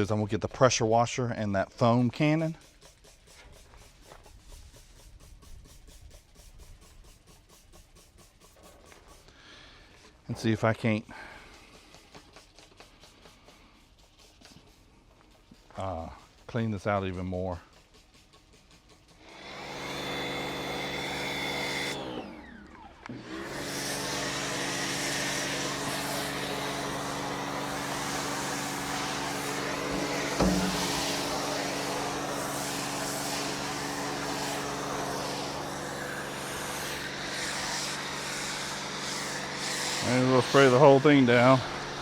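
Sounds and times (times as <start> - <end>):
water spray hiss: 1.8 - 22.0, 23.4 - 42.0
pressure washer motor hum: 19.1 - 42.0
thump: 29.9 - 31.4.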